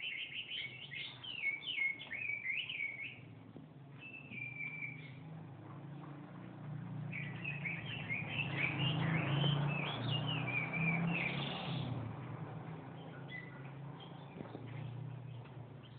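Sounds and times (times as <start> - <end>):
songbird warbling: 0.0 - 3.3.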